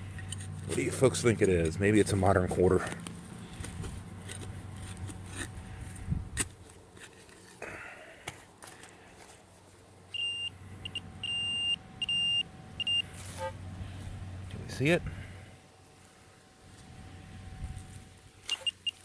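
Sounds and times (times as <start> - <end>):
digging scrapes and clicks: 0.0 - 9.8, 17.8 - 19.0
metal detector beeping: 10.1 - 13.6, 18.4 - 19.0.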